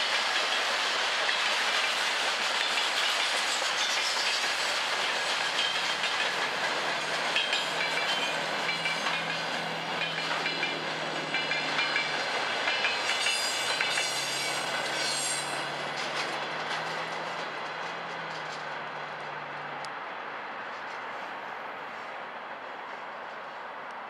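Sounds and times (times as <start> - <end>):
wheels clacking over rail joints: 0.0 - 19.7
high squealing from wheels: 1.5 - 19.4.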